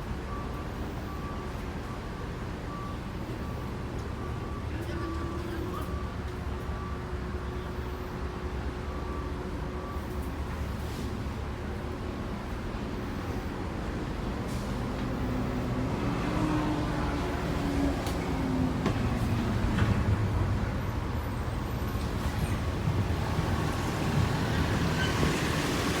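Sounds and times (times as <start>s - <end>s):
motor vehicle rumble: 13.8s - 26.0s.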